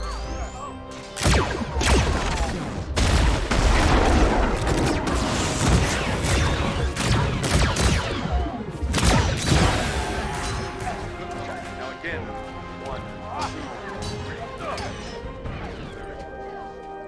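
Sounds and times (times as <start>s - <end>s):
rapid gunshots and impacts: 1.1s - 11.6s.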